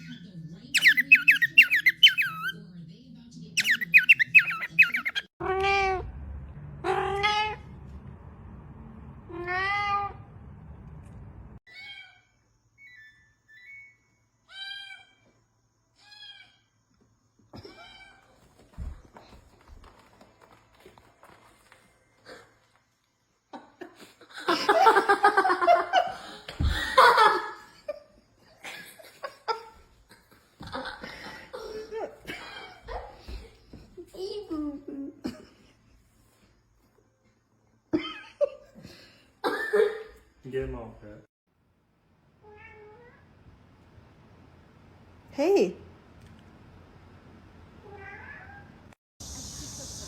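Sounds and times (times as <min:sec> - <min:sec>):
high chirping calls: 0:00.7 - 0:02.6, 0:03.6 - 0:05.3
person laughing hard: 0:23.8 - 0:27.7.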